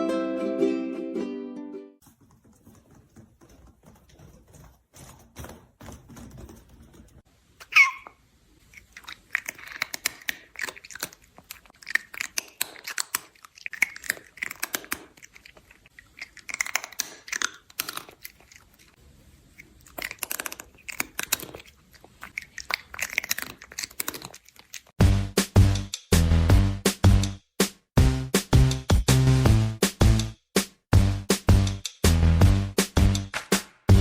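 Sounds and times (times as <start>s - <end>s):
animal chewing crunchy food: 8.6s - 25.0s.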